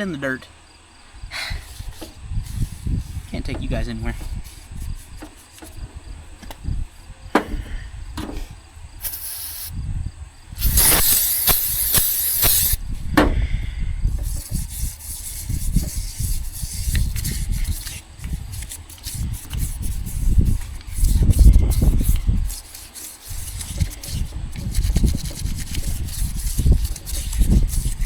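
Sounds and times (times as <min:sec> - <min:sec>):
wire brush scrubbing metal: 0:01.6 - 0:06.0, 0:10.6 - 0:12.8, 0:14.1 - 0:28.0
aerosol spray hissing: 0:09.0 - 0:09.8, 0:10.6 - 0:12.8.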